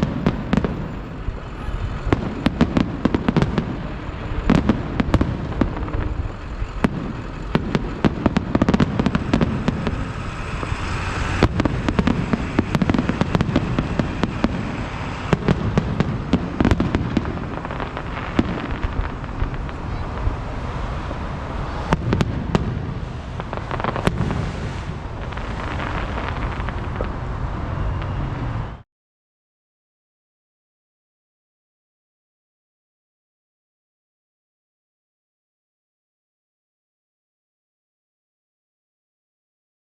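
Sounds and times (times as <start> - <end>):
fireworks bangs and crackles: 0.0 - 28.8
low rumble of explosions: 0.0 - 28.8.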